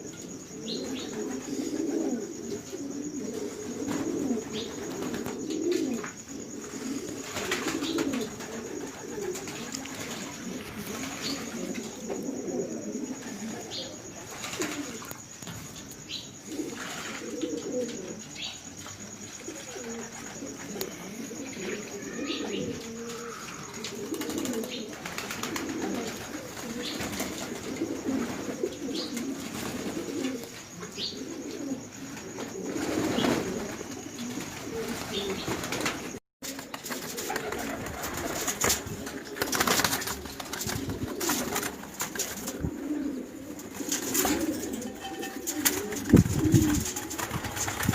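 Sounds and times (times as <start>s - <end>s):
pigeons cooing: 0.0s - 47.9s.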